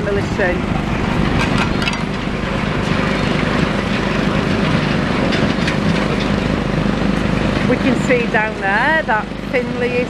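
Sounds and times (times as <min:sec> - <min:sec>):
heavy engines humming: 0:00.0 - 0:10.0
knocks and clanks: 0:01.2 - 0:06.6.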